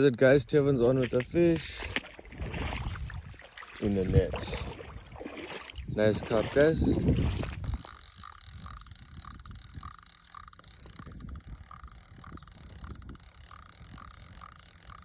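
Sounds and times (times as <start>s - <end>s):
fishing reel clicking: 7.6s - 15.0s.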